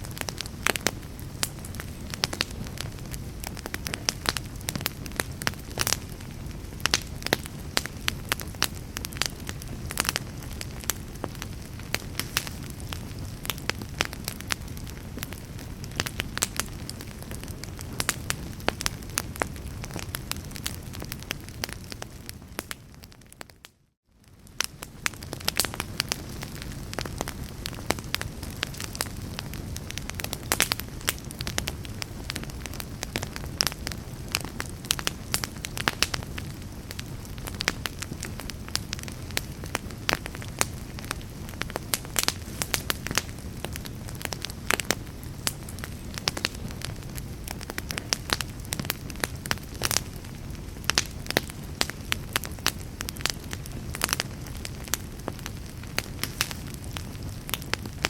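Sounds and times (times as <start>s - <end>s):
fireplace fire crackling: 0.0s - 58.0s.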